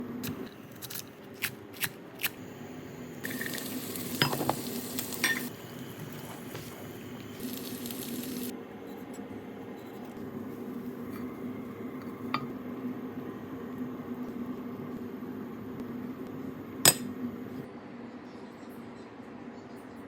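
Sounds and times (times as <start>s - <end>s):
food sizzling in a pan: 2.2s - 8.5s.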